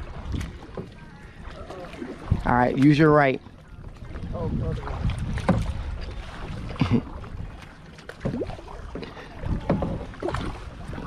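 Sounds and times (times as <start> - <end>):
paddle strokes: 0.0 - 11.0
water sloshing around hull: 0.0 - 11.0
wind rumbling on microphone: 0.0 - 11.0.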